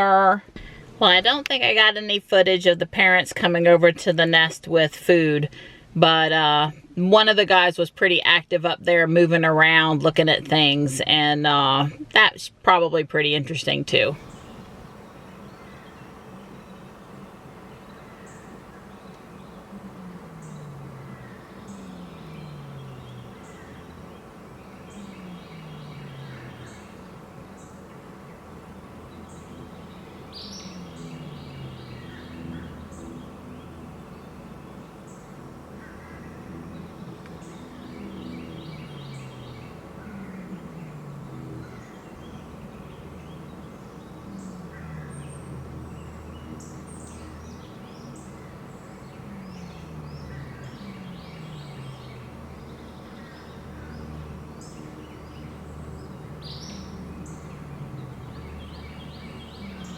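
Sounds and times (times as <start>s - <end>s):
songbirds chirping: 0.0s - 59.9s
low falling bird call: 14.2s - 59.9s.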